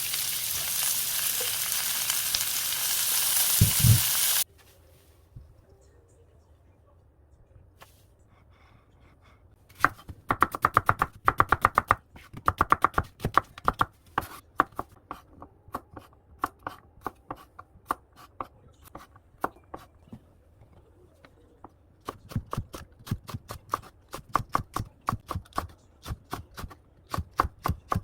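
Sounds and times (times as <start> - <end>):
knife chopping vegetables: 9.7 - 20.0, 22.0 - 28.0.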